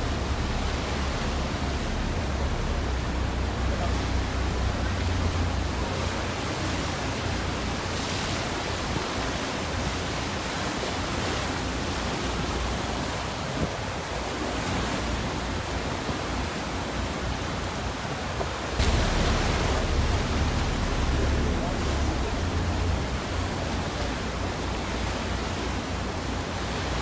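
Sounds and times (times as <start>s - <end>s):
low rumble: 0.0s - 7.9s, 18.8s - 26.0s
sea water rushing: 0.0s - 27.0s.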